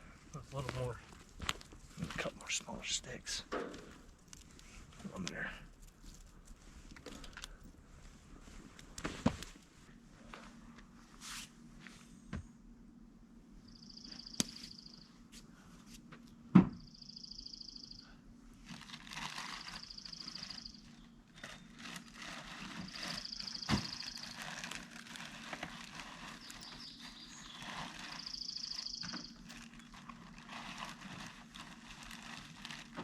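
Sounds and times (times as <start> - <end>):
campfire crackling: 0.0 - 9.6
knocks of tending fire: 0.0 - 9.7.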